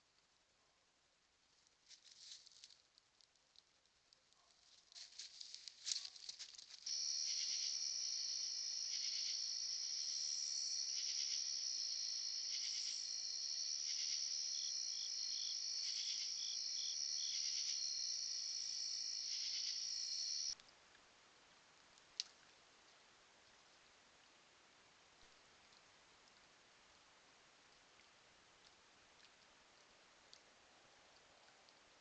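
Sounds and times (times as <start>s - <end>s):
light clicking and patter: 1.6s - 6.9s
insects trilling: 6.8s - 20.6s.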